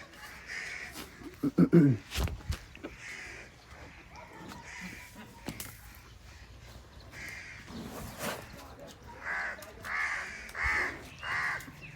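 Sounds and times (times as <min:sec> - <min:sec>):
bird calling: 0:02.8 - 0:11.9.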